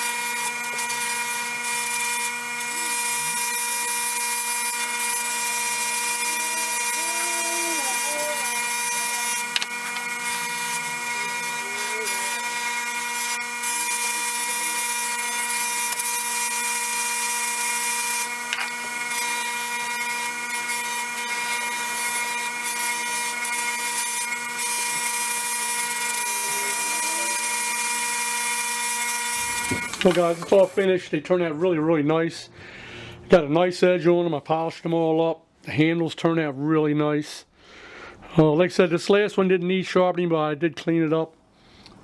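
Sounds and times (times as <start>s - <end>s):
electric motor humming: 0.0s - 30.9s
grinding wheel hissing on steel: 0.0s - 30.9s.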